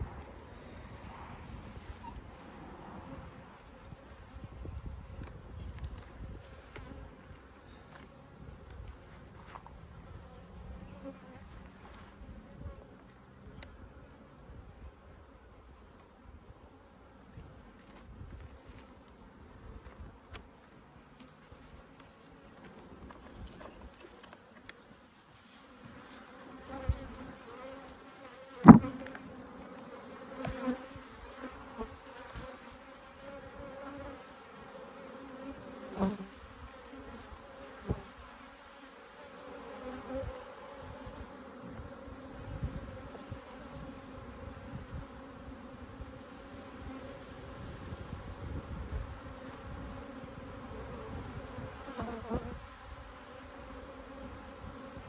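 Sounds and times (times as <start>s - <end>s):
honeybees buzzing: 25.6s - 55.0s
sharp knocks: 28.6s - 28.9s.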